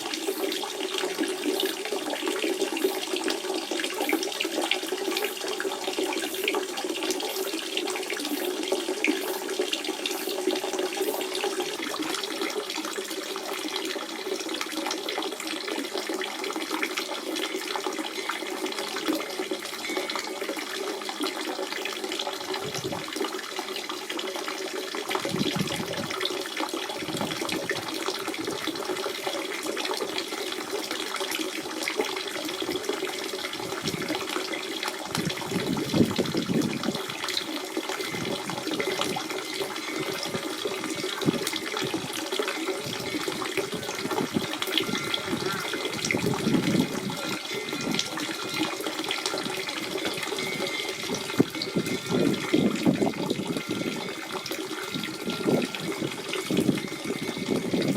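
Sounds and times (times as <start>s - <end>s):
spring water running and splashing: 0.0s - 57.9s.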